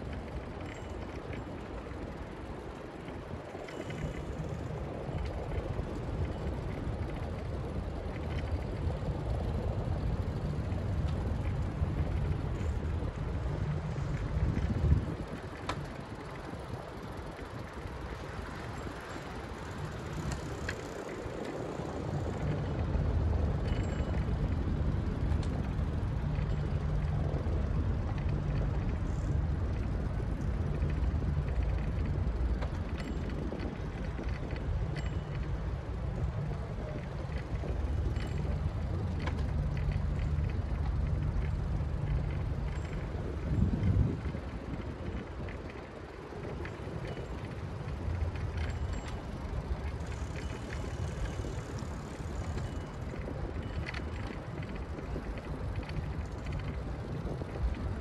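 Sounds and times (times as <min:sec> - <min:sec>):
wind on microphone: 0:11.6 - 0:20.6, 0:42.8 - 0:58.0.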